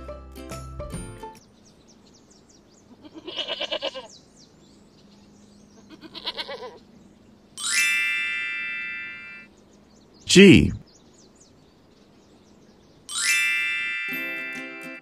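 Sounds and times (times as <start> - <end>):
goat bleating: 2.9 - 4.1, 5.8 - 6.8.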